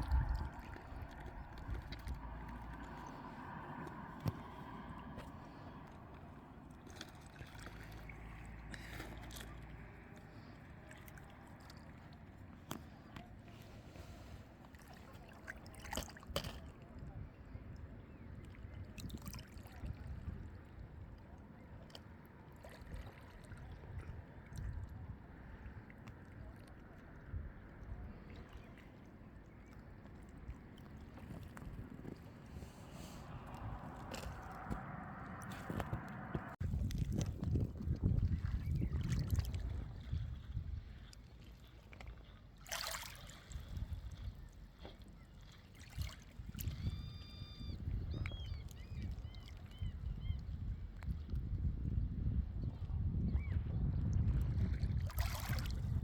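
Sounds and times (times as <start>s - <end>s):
low uneven rumble: 0.0s - 16.0s, 19.7s - 42.6s
sea water lapping: 0.0s - 51.0s, 54.5s - 56.0s
water splash: 32.6s - 37.3s, 42.6s - 43.6s.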